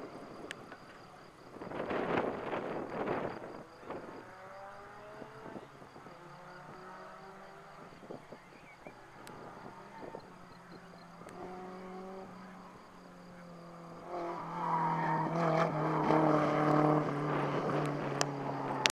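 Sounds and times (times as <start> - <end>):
car engine driving past: 1.7 - 18.9.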